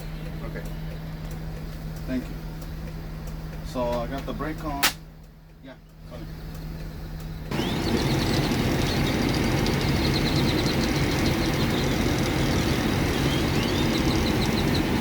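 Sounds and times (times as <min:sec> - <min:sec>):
diesel engine idling: 0:06.0 - 0:15.0.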